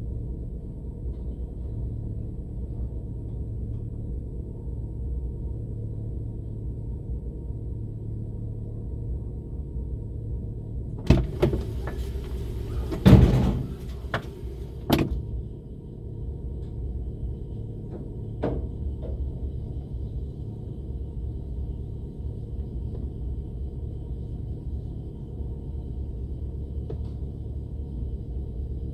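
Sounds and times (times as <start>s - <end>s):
car engine and tyres rumbling: 0.1s - 28.9s
sharp knocks and thumps: 11.0s - 15.2s.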